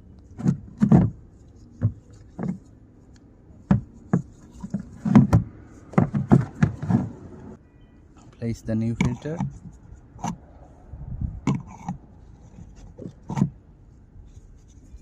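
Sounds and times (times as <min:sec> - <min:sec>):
plastic parts knocking and rubbing: 0:00.2 - 0:02.8, 0:03.6 - 0:07.4, 0:08.8 - 0:10.4, 0:11.4 - 0:13.6.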